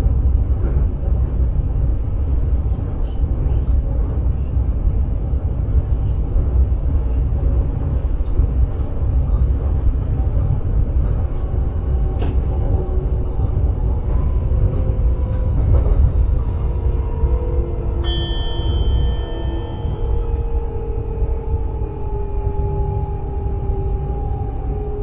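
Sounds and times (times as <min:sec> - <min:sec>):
train running rumble: 0:00.0 - 0:25.0
faint humming tone: 0:17.9 - 0:23.2.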